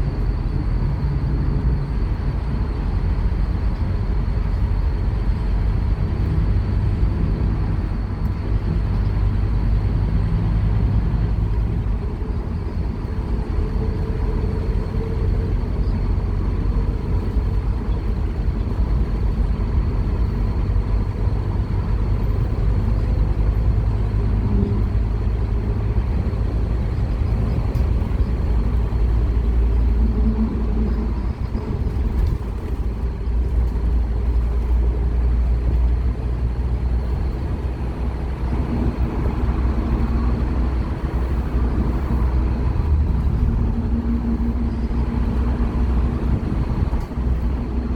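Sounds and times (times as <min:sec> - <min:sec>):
bus diesel engine under load: 0:00.0 - 0:47.9
road noise: 0:00.0 - 0:47.9.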